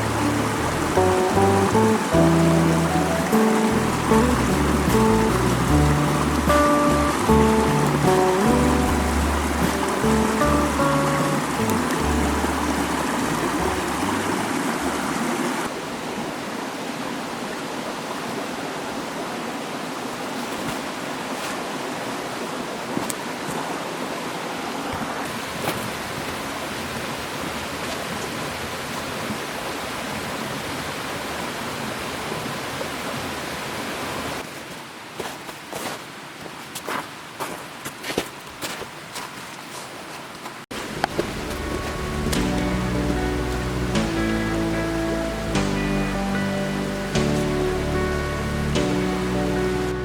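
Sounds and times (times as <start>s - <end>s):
mountain stream flowing: 0.0s - 50.0s.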